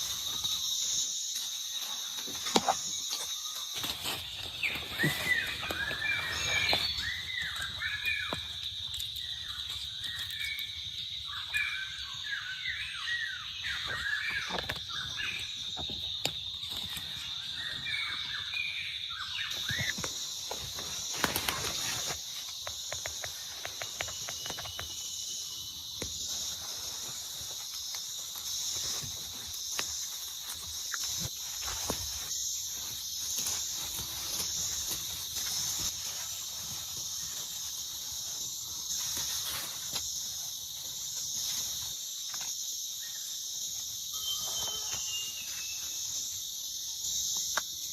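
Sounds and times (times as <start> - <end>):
higher insect chorus pulsing: 0.0 - 47.9
insects droning: 0.0 - 47.9
birds chirping: 1.6 - 32.6.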